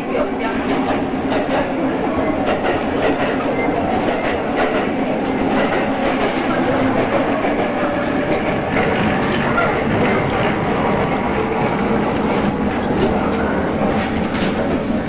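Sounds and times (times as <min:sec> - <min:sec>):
train running rumble: 0:00.4 - 0:15.0
wheels clicking over rail joints: 0:05.5 - 0:15.0.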